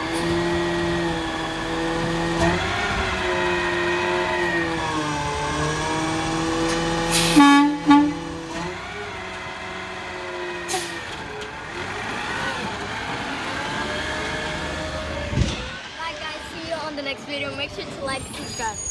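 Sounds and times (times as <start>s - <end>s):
garbage truck engine running: 0.0s - 18.9s
horn honks: 7.2s - 8.4s.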